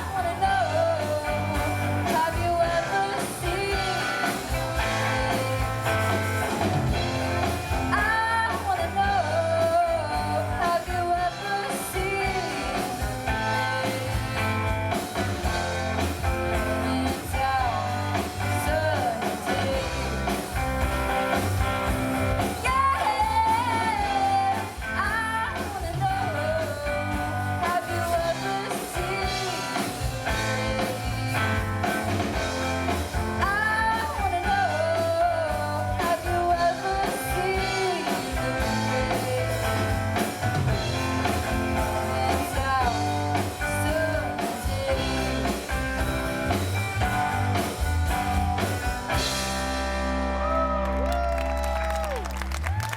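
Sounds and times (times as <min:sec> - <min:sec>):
lead singer singing: 0:00.0 - 0:49.6
rock band playing: 0:00.0 - 0:52.9.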